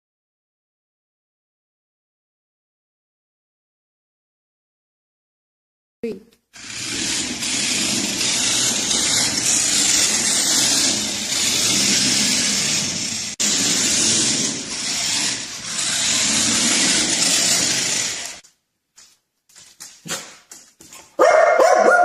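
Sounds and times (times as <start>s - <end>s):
loud steady machine noise: 6.6s - 18.4s.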